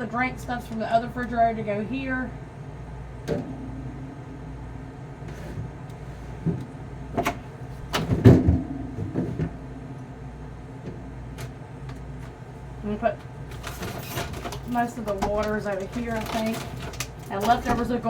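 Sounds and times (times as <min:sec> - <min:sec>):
containers and bottles clunking: 0:06.4 - 0:09.6, 0:13.1 - 0:18.0.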